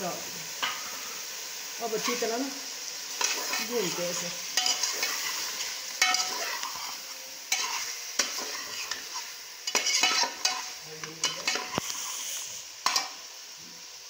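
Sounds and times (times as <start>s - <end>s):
chicken sizzling in a pan: 0.0s - 14.0s
utensil scraping a pan: 3.2s - 13.1s.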